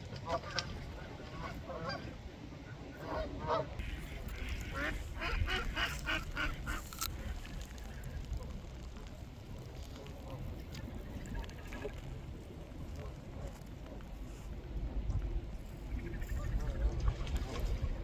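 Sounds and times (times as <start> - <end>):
ducks quacking: 3.0 - 7.3.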